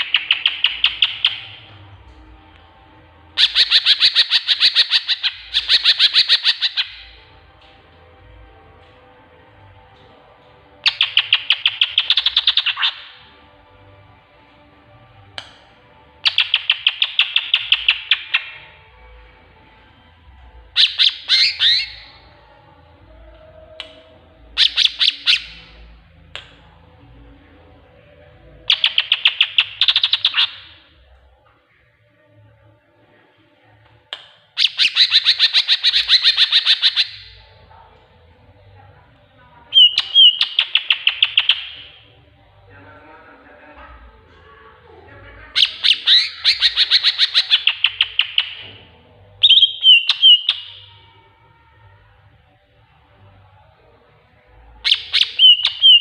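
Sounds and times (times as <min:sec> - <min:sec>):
bird singing high sharp notes: 0:03.4 - 0:07.2, 0:20.8 - 0:22.3, 0:24.6 - 0:25.8, 0:34.6 - 0:37.5, 0:39.7 - 0:42.0, 0:45.6 - 0:48.6, 0:49.4 - 0:50.9, 0:54.9 - 0:56.0.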